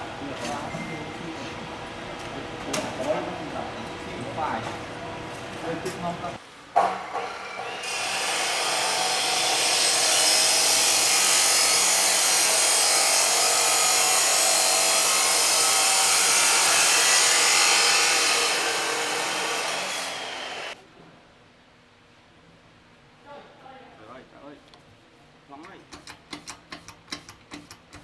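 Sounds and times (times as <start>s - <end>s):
power tool running: 6.8s - 20.8s.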